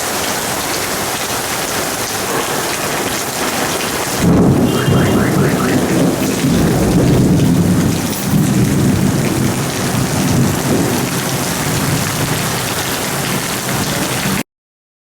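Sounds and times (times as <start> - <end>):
steady rain falling: 0.0 - 14.4
rolling thunder: 4.2 - 12.4.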